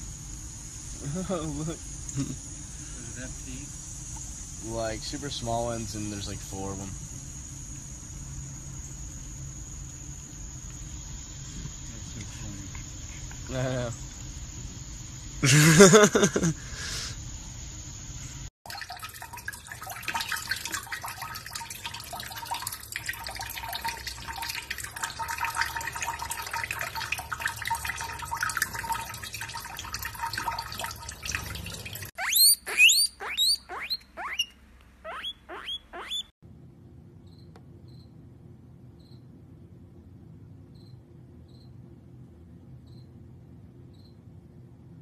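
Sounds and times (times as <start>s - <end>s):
faint steady hum: 0.0s - 32.1s
small water splashes: 18.7s - 32.1s
faucet water running into sink: 18.7s - 32.2s
short high rising squeaks: 32.2s - 36.3s.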